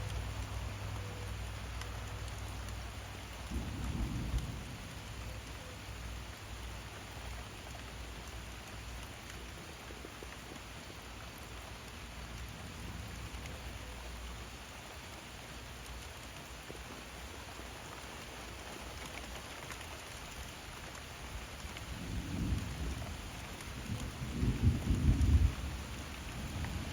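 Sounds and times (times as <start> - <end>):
steady rain falling: 0.0 - 26.9
low thunder rumble: 1.9 - 7.5, 21.8 - 26.9.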